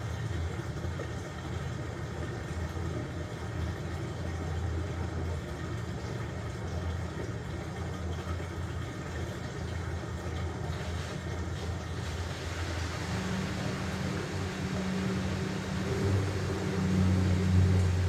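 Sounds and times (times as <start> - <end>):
washing machine motor hum: 10.5 - 18.0.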